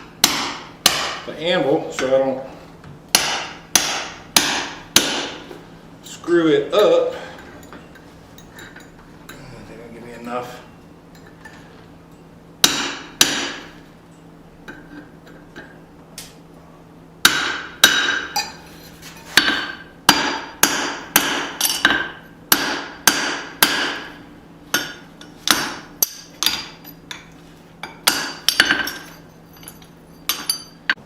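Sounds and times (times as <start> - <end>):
hammer striking steel on anvil: 0.2 - 1.3, 3.1 - 5.4, 12.1 - 13.7, 17.2 - 18.6, 19.4 - 31.0.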